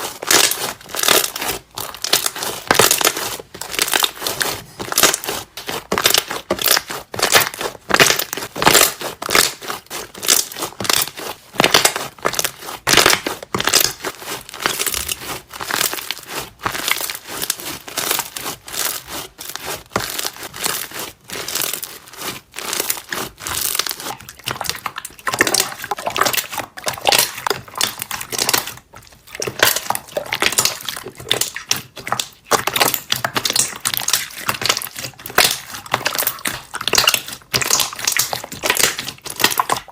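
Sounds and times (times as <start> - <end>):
slime squeezed by hand: 0.0 - 39.9
air bubbles popping: 24.3 - 27.9.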